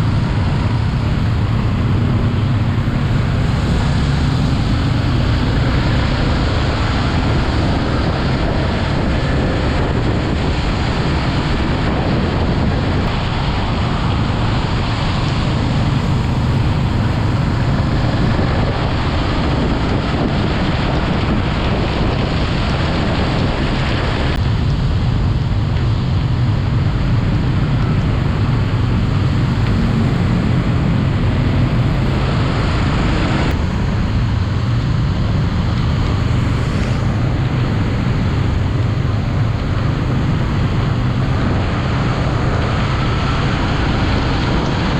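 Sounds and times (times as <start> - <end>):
motorcycle engine running: 0.0 - 44.9
wind rushing over microphone: 0.0 - 44.9.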